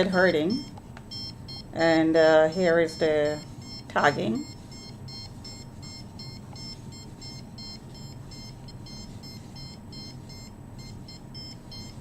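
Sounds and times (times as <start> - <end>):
rapid electronic beeps: 0.0 - 1.7, 2.5 - 12.0.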